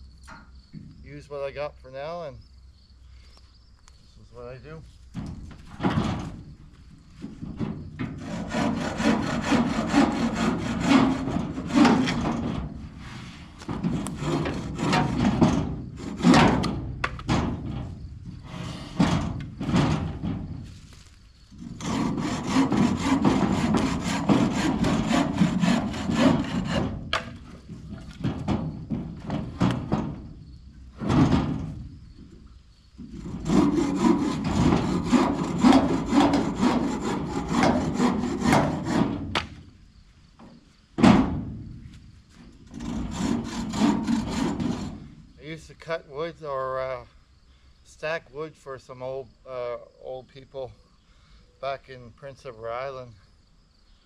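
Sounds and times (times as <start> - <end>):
hand saw cutting wood: 8.1 - 17.2, 21.6 - 27.3, 33.0 - 39.5, 42.7 - 45.1.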